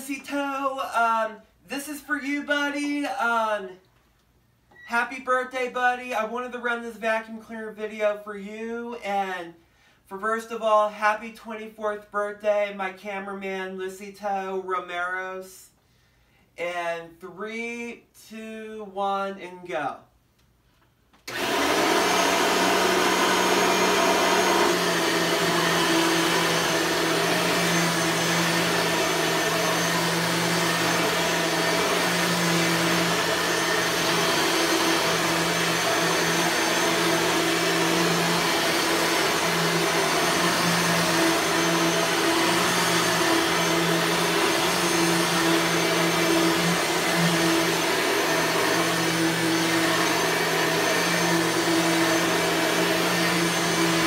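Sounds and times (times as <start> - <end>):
vacuum cleaner running: 21.3 - 54.0.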